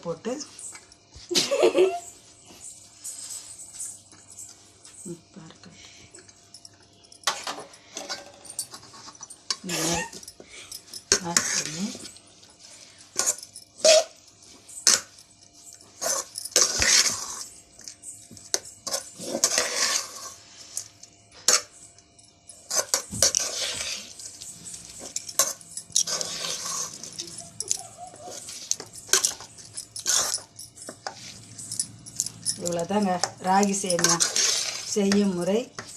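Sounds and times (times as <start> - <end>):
spoon scraping against bowl: 18.5 - 21.9, 22.5 - 35.9.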